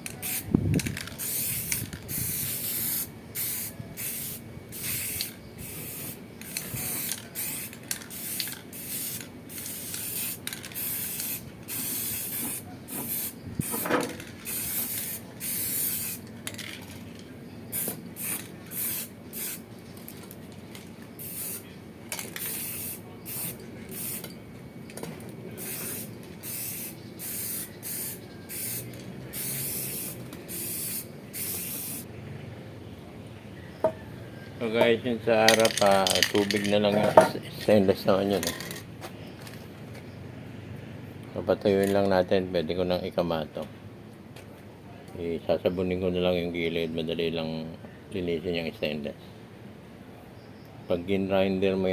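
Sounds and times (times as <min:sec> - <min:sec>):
spray can hissing in bursts: 0:00.0 - 0:17.1, 0:17.7 - 0:20.2, 0:21.1 - 0:24.3, 0:25.6 - 0:32.1.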